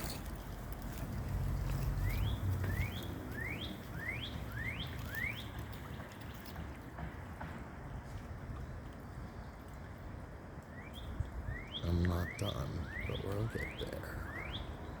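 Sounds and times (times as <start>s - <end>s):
songbird whistling upslurred notes: 2.0s - 5.6s.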